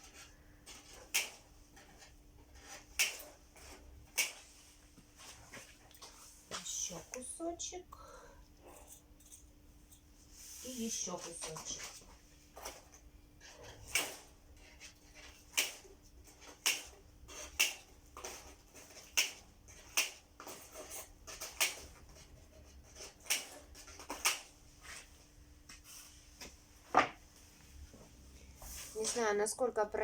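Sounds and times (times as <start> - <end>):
cutters snipping wire mesh: 0.7 - 1.4, 2.6 - 4.4, 13.8 - 14.3, 15.3 - 22.0, 23.0 - 24.5.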